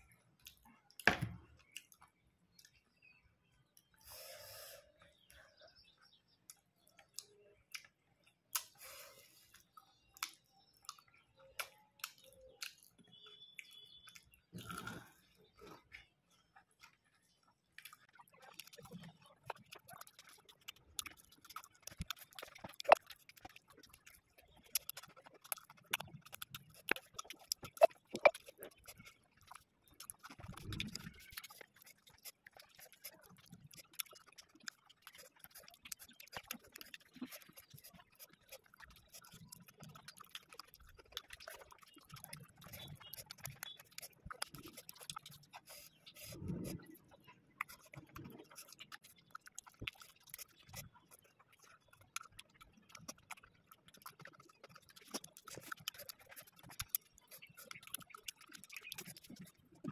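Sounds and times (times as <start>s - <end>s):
person chewing and crunching: 0.1s - 2.9s, 6.4s - 59.9s
low mouth sounds: 14.5s - 15.8s, 42.2s - 48.9s.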